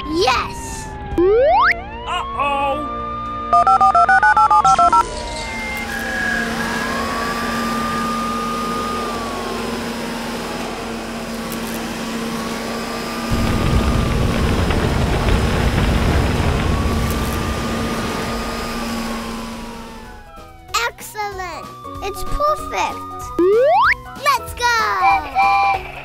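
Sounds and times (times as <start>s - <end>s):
siren-like wail: 0.0s - 20.8s, 21.6s - 24.2s, 24.8s - 26.0s
electronic beeps: 3.5s - 5.7s, 22.2s - 24.1s.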